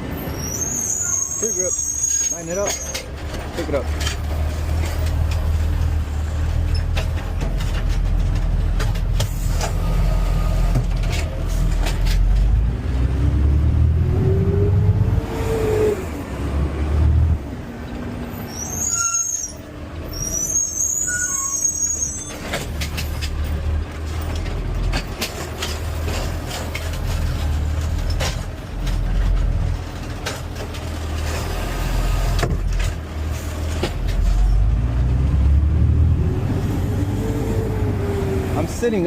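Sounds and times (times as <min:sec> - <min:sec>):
brake squeals: 0:00.0 - 0:08.2, 0:18.2 - 0:35.1
truck engine rumble: 0:00.0 - 0:39.0
knocks and rattles: 0:02.6 - 0:09.8, 0:22.3 - 0:31.6.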